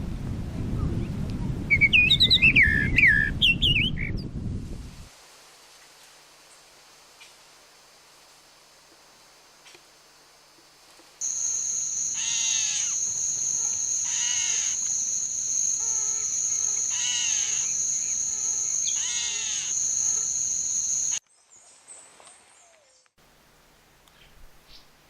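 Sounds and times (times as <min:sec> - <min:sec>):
bird calling rough notes: 0:11.2 - 0:21.2
high-pitched buzz: 0:11.2 - 0:21.2.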